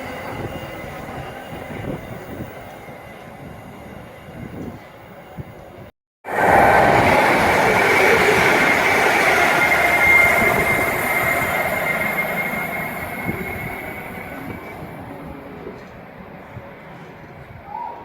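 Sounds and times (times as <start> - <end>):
train passing: 0.0 - 18.0
high ringing from wheels and rails: 6.3 - 16.9.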